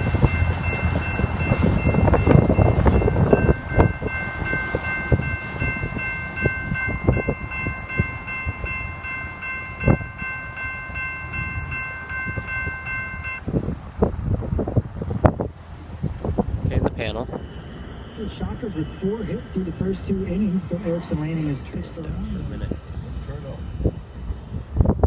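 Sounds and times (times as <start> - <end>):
chord of high tones: 0.0 - 13.4
wheels clanking over rail joints: 0.0 - 16.9
freight train rumbling past: 0.0 - 25.0.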